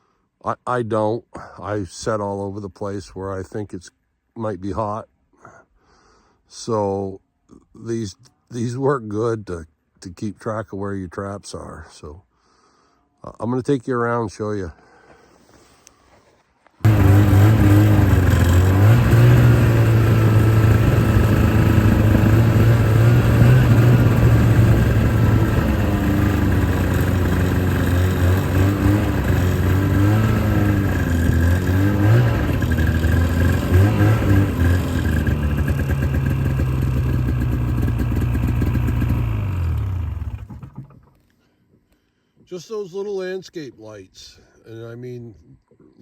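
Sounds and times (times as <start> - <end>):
off-road vehicle engine revving: 16.8 - 40.7.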